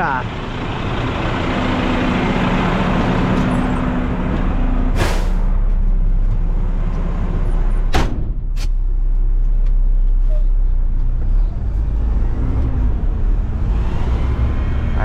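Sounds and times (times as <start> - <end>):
diesel truck engine droning: 0.0 - 15.0
air brake hiss: 5.0 - 5.5.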